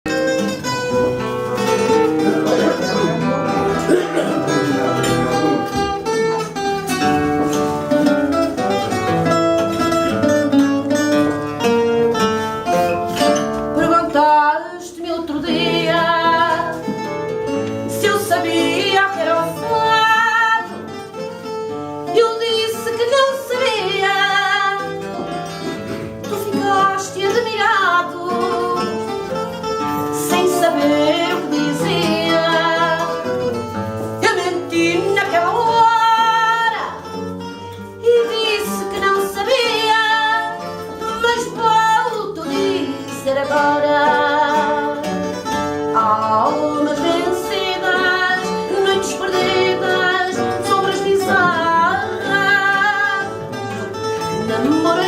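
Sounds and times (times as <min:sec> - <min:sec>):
plucked and strummed guitars: 0:00.0 - 0:55.0
woman singing with vibrato: 0:13.7 - 0:17.0, 0:17.8 - 0:20.9, 0:22.0 - 0:25.3, 0:26.2 - 0:29.3, 0:30.0 - 0:37.2, 0:37.9 - 0:45.3, 0:45.9 - 0:53.6, 0:54.3 - 0:55.0.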